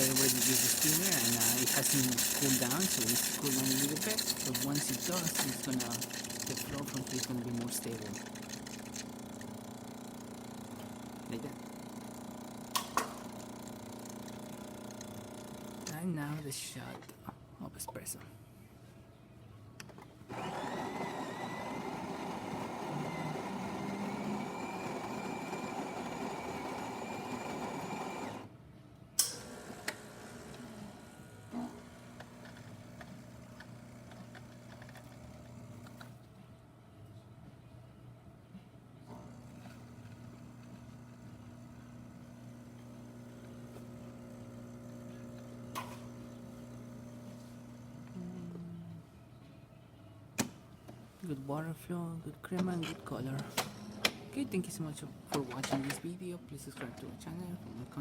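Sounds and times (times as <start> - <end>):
coffee grinder whirring: 0.0 - 15.8, 20.3 - 28.4
espresso machine pump humming: 0.0 - 15.8, 20.3 - 28.5, 29.4 - 36.1, 39.1 - 48.6.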